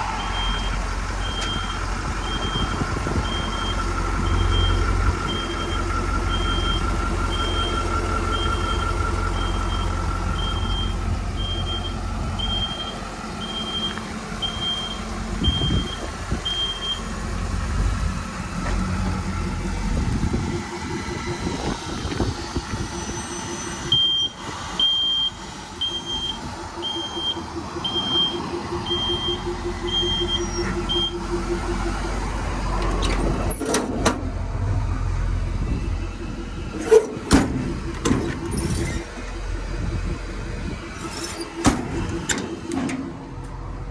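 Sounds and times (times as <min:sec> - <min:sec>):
diesel truck engine running: 0:00.0 - 0:43.9
backup alarm beeping: 0:00.2 - 0:17.0, 0:23.9 - 0:32.2.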